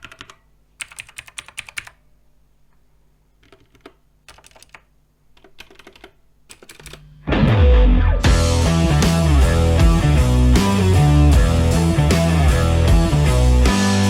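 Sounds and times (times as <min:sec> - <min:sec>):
mechanical keyboard typing: 0:00.0 - 0:02.0, 0:03.4 - 0:07.1.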